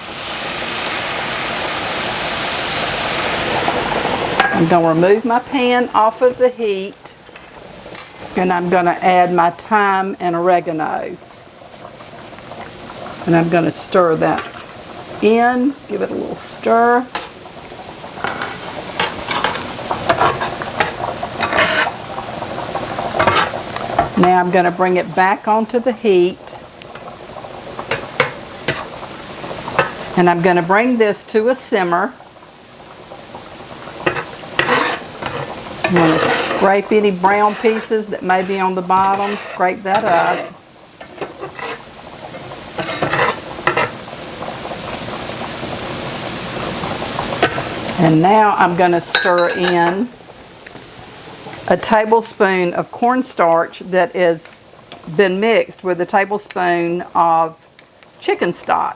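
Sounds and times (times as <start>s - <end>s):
sauce sizzling and bubbling: 0.0s - 58.9s
utensil scraping a pan: 18.2s - 22.0s, 23.2s - 24.2s, 27.9s - 28.9s, 34.0s - 44.0s.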